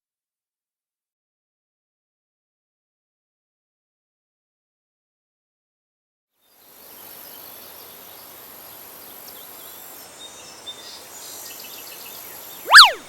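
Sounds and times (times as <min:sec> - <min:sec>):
steady hiss: 0:06.5 - 0:12.6
faint bird chirps: 0:06.9 - 0:13.0.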